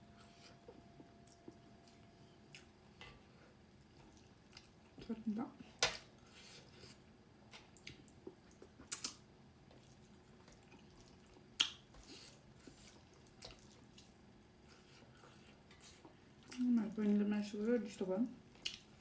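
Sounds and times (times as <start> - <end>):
wet mouth clicks and smacks: 11.6 - 11.8.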